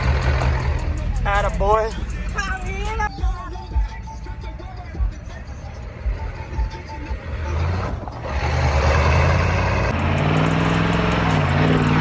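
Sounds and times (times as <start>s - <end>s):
vehicle engine revving: 0.0s - 1.3s, 5.4s - 12.0s.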